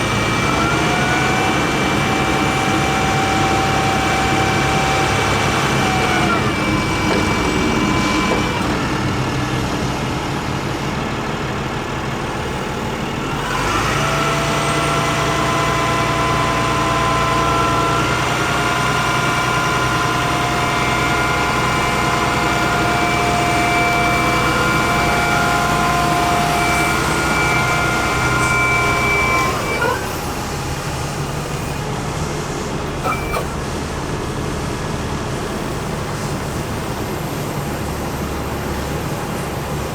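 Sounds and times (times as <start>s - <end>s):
diesel engine running with whine: 0.0s - 39.9s.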